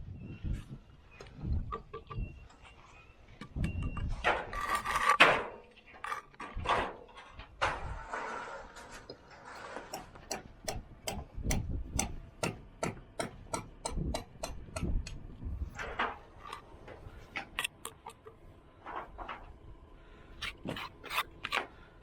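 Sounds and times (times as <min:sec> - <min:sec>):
tools tapping on brick: 0:09.9 - 0:15.2.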